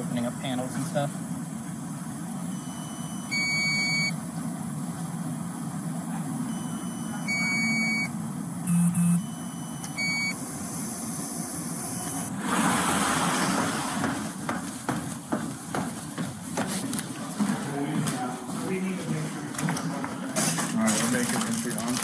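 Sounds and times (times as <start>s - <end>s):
heavy vehicle engine running: 0.0s - 17.8s
two-tone electronic beeps: 2.5s - 4.2s, 6.4s - 10.4s
loud burst of hiss: 10.4s - 14.4s.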